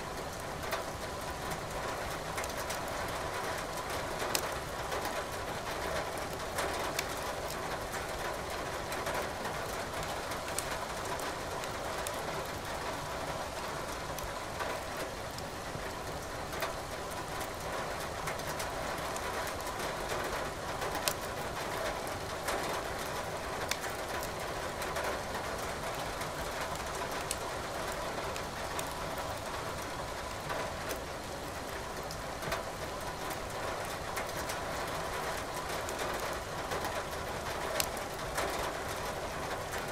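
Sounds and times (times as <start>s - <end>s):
steady rain: 0.0s - 39.9s
firewood crackling and popping: 6.9s - 7.1s, 21.0s - 21.2s, 23.6s - 24.3s, 27.0s - 27.4s.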